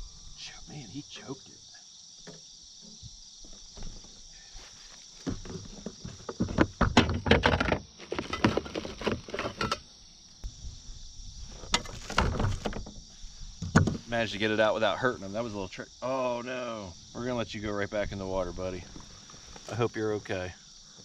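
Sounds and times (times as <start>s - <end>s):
high insect chorus: 0.0s - 21.0s
handling knocks and rattles: 5.2s - 9.8s, 11.7s - 13.0s.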